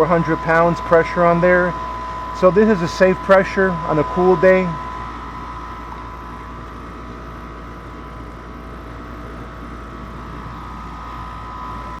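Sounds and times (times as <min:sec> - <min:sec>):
high-pitched tone: 0:00.0 - 0:06.5
air conditioner hum and rumble: 0:00.0 - 0:12.0.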